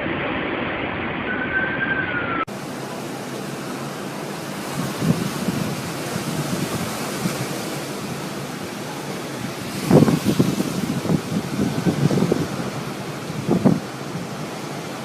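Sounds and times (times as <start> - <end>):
faint siren-like tone: 1.2 - 2.5
strong storm wind rushing: 4.2 - 15.0.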